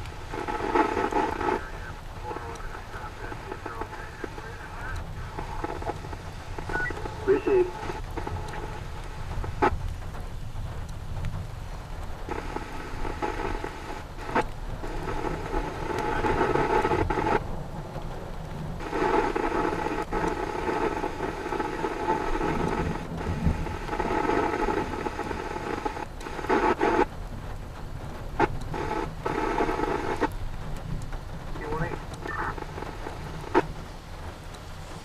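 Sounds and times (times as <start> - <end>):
muffled radio transmission: 0.0 - 9.9, 12.2 - 17.5, 18.8 - 27.2, 28.3 - 35.0
sharp clicks: 0.0 - 10.0
radio scanner hissing and crackling: 0.0 - 35.0
steady rain: 0.0 - 35.0.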